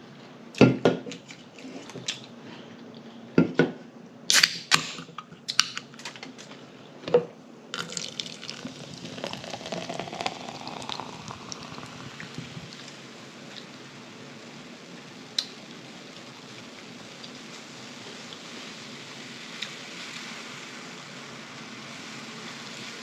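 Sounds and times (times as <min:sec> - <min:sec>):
soda fizzing as poured into glass: 0:07.8 - 0:23.0.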